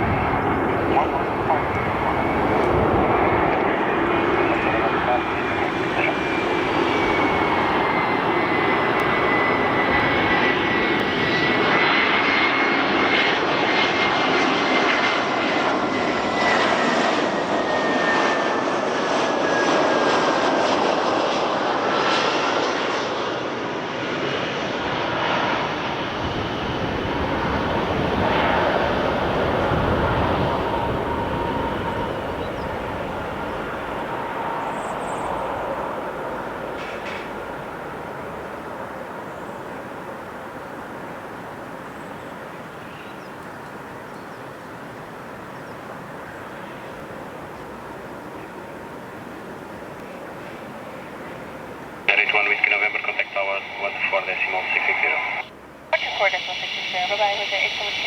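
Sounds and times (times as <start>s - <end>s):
jet engines rushing and whining: 0.0s - 58.0s.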